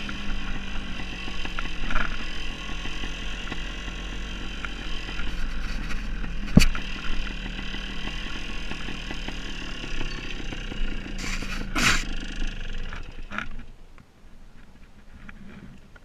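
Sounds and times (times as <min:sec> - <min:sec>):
motorcycle engine at low revs: 0:00.0 - 0:16.0
scraping rustles: 0:05.1 - 0:07.2, 0:11.2 - 0:12.1, 0:14.5 - 0:16.0.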